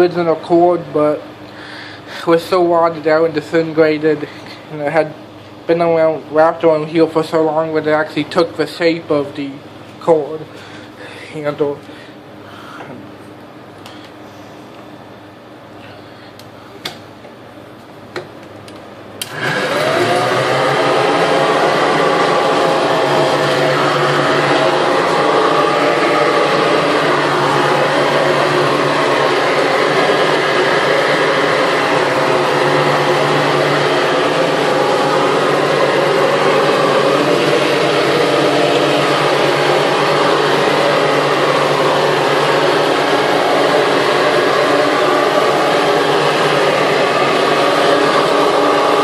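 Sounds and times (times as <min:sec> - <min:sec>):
upright vacuum cleaner running: 0:00.0 - 0:07.9, 0:19.2 - 0:49.0.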